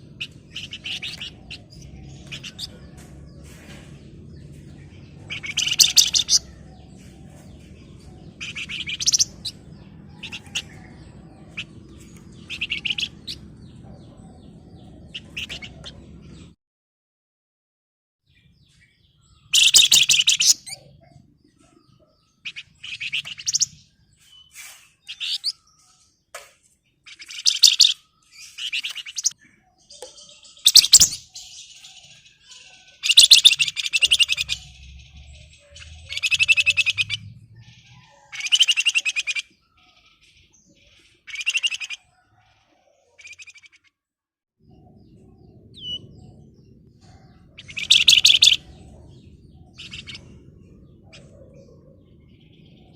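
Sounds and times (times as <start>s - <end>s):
songbird rattling trills: 5.2s - 6.7s, 30.0s - 35.0s, 47.6s - 48.7s.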